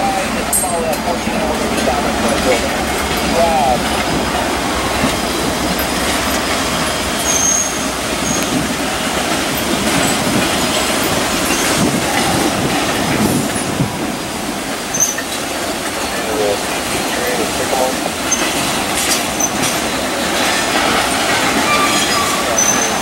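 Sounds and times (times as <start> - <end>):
train wheels rumbling on rails: 0.0 - 23.0
high wheel squeals: 5.4 - 8.7, 11.0 - 12.4, 14.9 - 15.4, 20.8 - 23.0.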